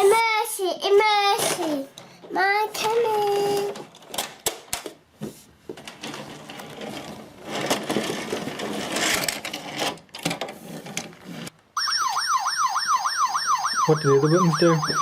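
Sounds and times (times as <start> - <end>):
toy electronic siren: 11.8 - 15.0.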